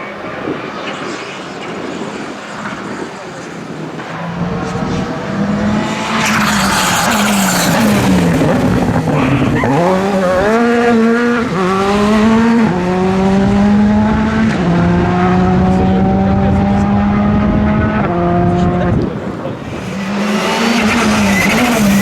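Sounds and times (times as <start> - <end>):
car engine accelerating: 0.1 - 22.0
tyre noise rushing: 0.7 - 10.2, 19.1 - 22.0.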